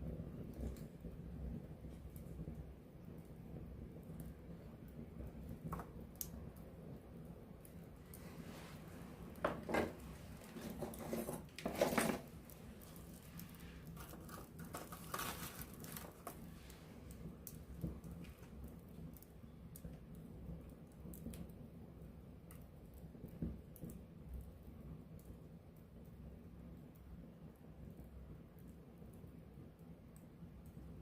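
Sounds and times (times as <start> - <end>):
wood fire crackling and popping: 0.0 - 31.0.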